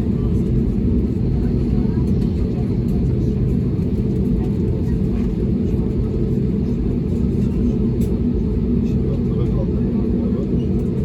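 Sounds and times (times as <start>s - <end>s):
jet engines rumbling inside cabin: 0.0s - 11.0s.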